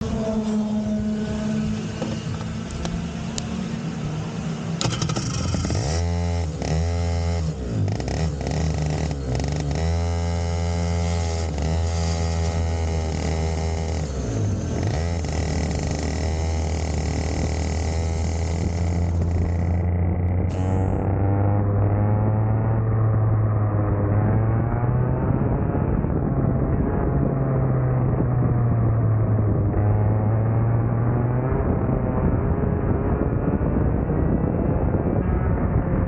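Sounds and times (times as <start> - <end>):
kart engine revving: 0.0 - 27.4.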